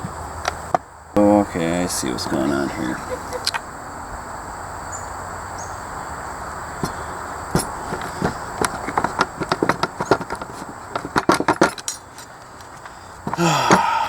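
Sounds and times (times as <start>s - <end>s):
metal tools clinking and rattling: 7.6s - 13.8s.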